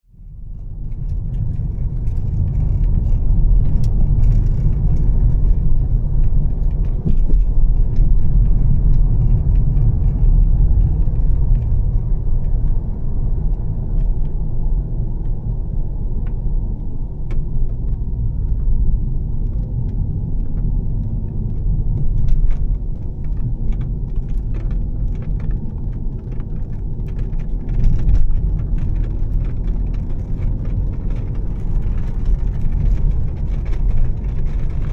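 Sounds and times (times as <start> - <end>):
car engine rumbling: 0.1 - 34.9.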